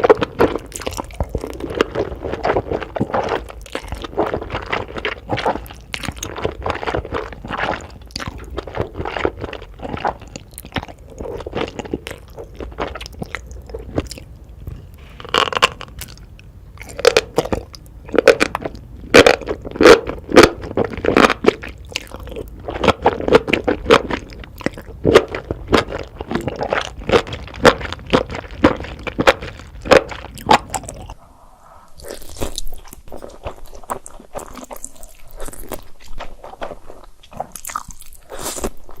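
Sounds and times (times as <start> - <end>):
person crunching and chewing food: 0.0 - 31.2, 31.9 - 39.0
soft hissy sound: 31.2 - 32.0.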